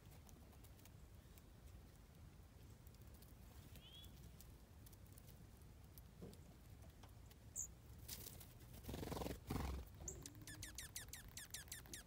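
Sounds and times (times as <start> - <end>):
songbird whistling: 3.8 - 4.2, 10.0 - 12.0.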